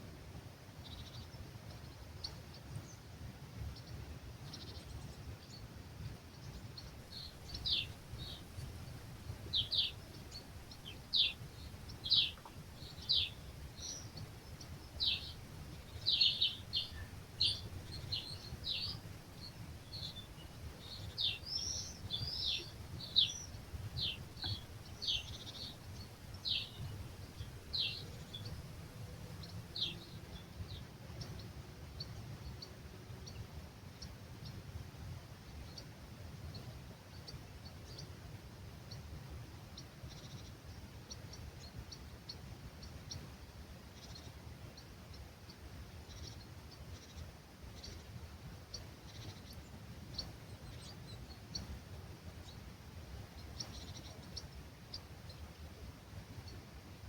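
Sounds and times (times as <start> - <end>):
songbird calling: 6.3 - 34.2, 48.7 - 51.8, 53.4 - 55.6
breeze rumble: 6.6 - 31.0.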